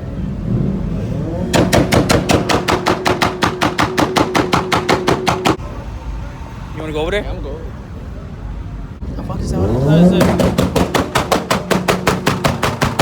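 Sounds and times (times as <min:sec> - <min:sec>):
exhaust popping: 0:00.9 - 0:05.6, 0:09.0 - 0:13.0
car engine on rev limiter: 0:09.0 - 0:12.2.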